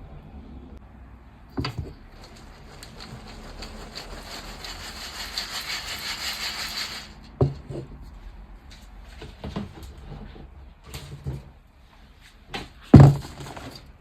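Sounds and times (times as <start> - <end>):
chalk crunching: 2.1 - 7.2.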